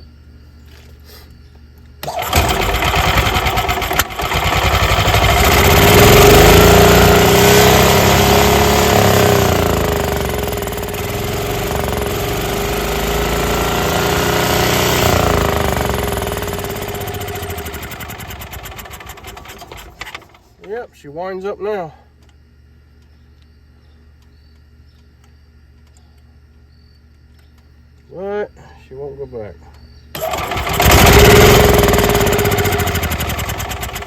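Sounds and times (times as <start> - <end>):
golf cart engine starting and revving: 2.0 - 20.7, 30.1 - 34.0.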